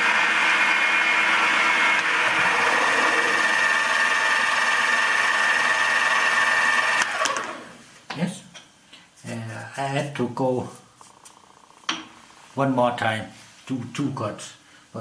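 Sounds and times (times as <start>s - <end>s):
milling machine whining: 0.0s - 7.7s.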